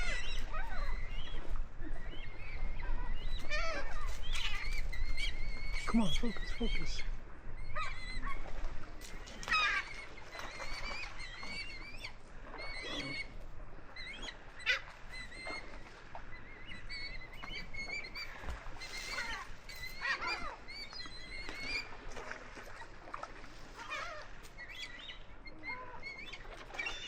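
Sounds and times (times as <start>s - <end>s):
birds calling: 0.0s - 27.0s.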